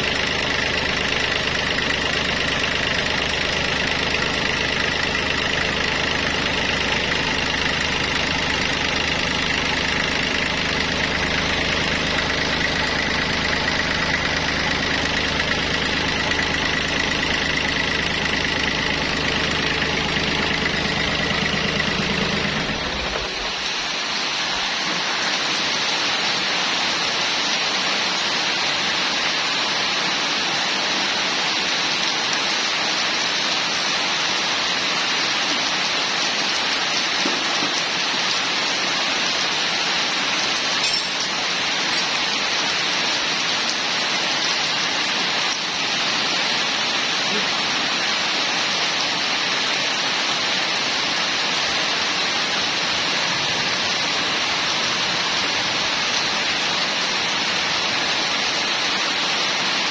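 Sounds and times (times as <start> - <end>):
engine idling: 0.0 - 24.7.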